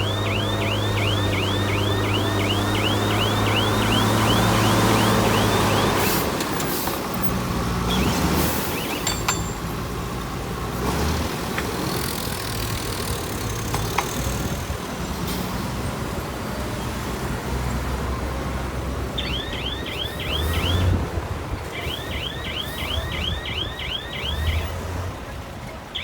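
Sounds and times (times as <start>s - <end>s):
chirping warning alarm: 0.0s - 6.4s, 7.9s - 9.4s, 19.1s - 21.0s, 21.6s - 24.9s
heavy machinery diesel engine: 0.0s - 26.0s
metallic clanks and knocks: 8.9s - 9.9s.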